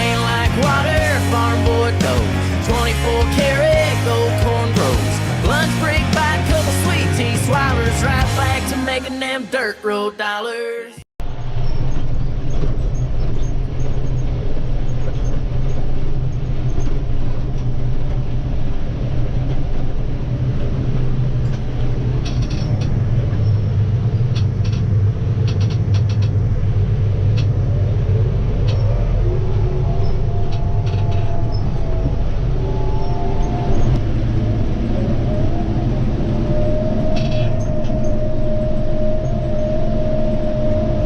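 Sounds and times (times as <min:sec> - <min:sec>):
tractor diesel engine under load: 0:00.0 - 0:09.5.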